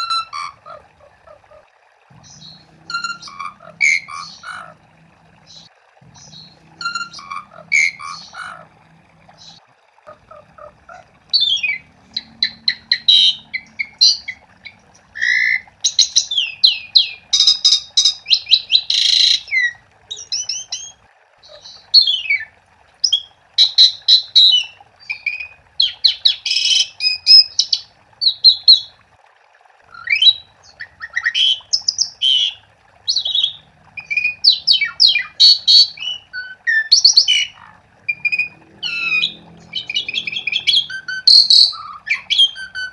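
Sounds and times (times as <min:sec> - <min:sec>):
starling singing: 0:00.0 - 0:04.8, 0:05.4 - 0:28.9, 0:30.0 - 0:42.9.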